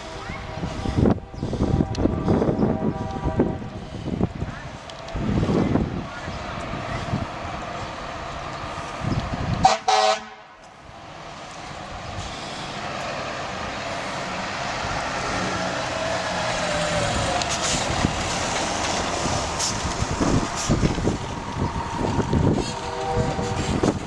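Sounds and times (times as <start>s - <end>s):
fire truck horn blasts: 0.0s - 4.2s, 9.6s - 10.6s, 22.0s - 24.0s
truck engine noise: 0.0s - 24.0s.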